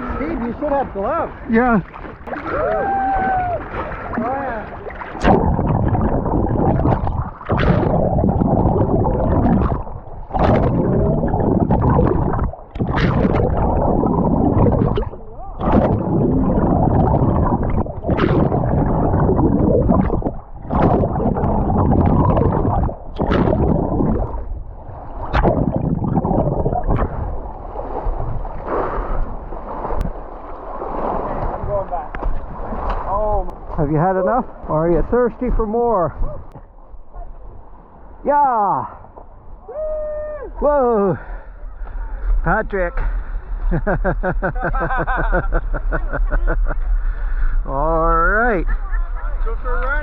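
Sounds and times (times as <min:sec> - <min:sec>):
muffled water sloshing and gurgling: 0:00.0 - 0:39.8, 0:40.4 - 0:50.0
sharp water splash: 0:01.7 - 0:33.5.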